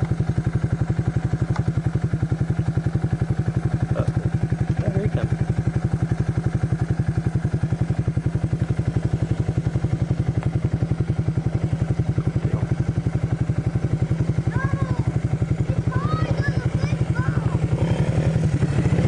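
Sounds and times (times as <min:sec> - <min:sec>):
quad bike engine idling: 0:00.0 - 0:19.0.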